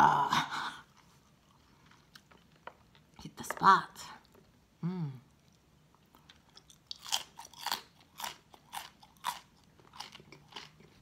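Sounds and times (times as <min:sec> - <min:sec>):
crunching raw vegetable: 0:06.2 - 0:11.0.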